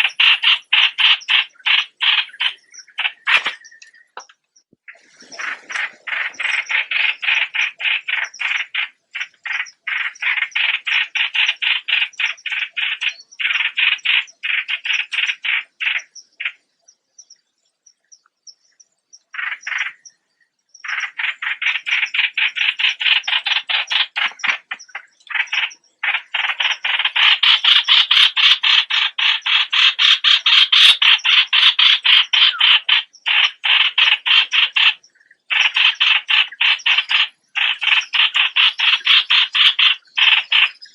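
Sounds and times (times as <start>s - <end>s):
bird calling harsh rapid notes: 25.3s - 34.7s.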